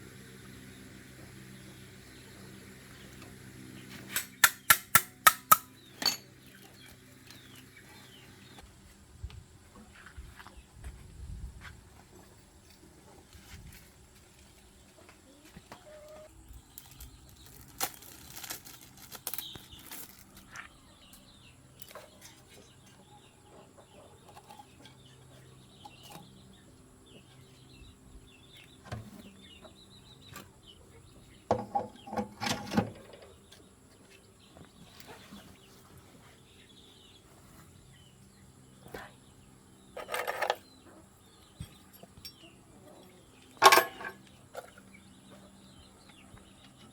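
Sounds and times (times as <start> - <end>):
hand tools clinking on metal: 4.1 - 7.5, 41.7 - 42.5, 43.6 - 44.3
chickens clucking: 14.6 - 16.7, 20.4 - 46.9.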